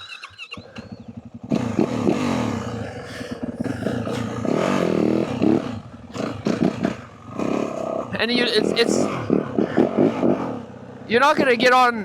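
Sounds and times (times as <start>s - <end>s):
short high squeaks: 0.0s - 1.1s
dirt bike engine revving: 0.0s - 12.0s.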